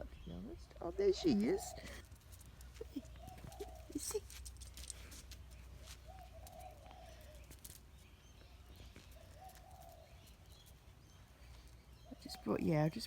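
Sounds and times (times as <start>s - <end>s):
dove cooing: 0.9s - 7.8s, 8.6s - 10.6s.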